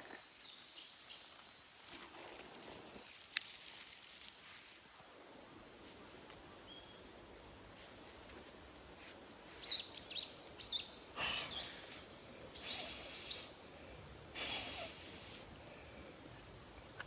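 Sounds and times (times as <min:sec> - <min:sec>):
bird chirping: 0:06.6 - 0:07.1, 0:09.6 - 0:11.9, 0:12.6 - 0:13.7.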